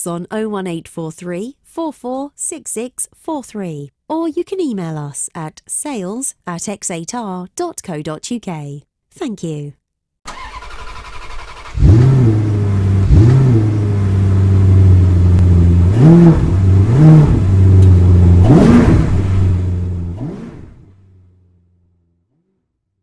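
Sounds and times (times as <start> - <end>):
car engine revving: 10.3 - 22.7.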